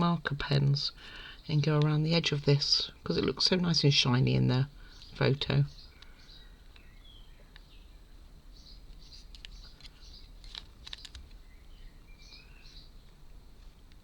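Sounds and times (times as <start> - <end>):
faint bird chirps: 4.7 - 13.6.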